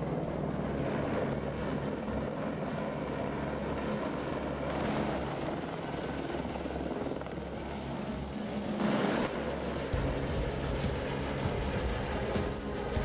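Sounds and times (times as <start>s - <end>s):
helicopter droning overhead: 0.0s - 13.0s.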